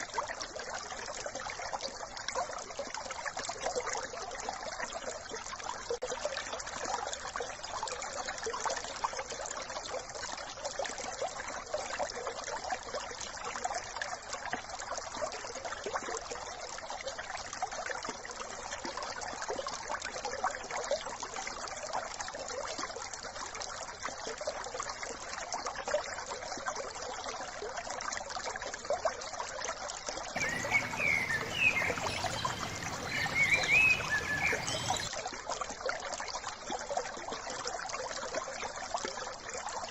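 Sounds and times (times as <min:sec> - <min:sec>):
brook trickling over stones: 0:00.0 - 0:39.9
songbirds chirping: 0:30.4 - 0:35.1.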